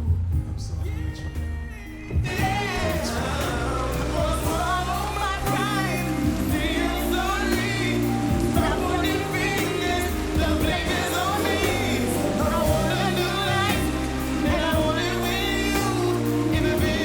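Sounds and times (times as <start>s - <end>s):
sustained bass and chords: 0.0s - 17.0s
ballad with person singing: 0.6s - 17.0s.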